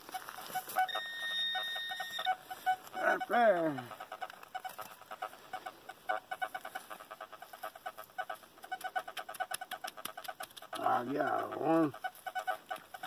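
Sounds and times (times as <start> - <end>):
metal detector pinpointer beeping: 0.6 - 3.4.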